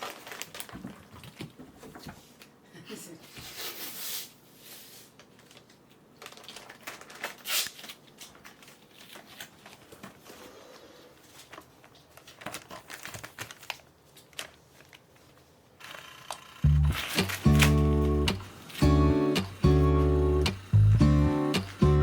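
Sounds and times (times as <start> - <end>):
crinkly material rustling: 0.0 - 2.5, 4.7 - 15.7.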